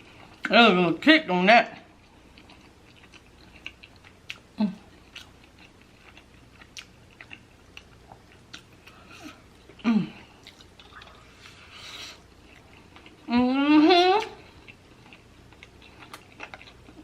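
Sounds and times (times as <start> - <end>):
person chewing food: 2.0 - 13.3, 14.2 - 17.0
woman's appreciative hum: 4.6 - 4.9, 9.2 - 10.3.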